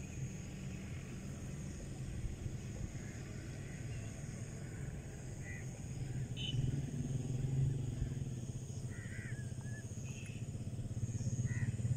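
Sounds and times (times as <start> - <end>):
vehicle engine rumbling: 0.0 - 11.9
faint bird chirps: 8.8 - 11.9.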